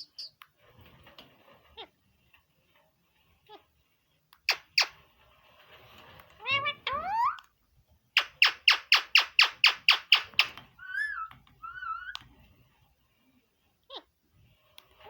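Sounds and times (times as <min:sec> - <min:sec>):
parrot squawking: 0:06.4 - 0:07.4, 0:08.2 - 0:12.2
parrot warbling whistles: 0:10.8 - 0:12.2.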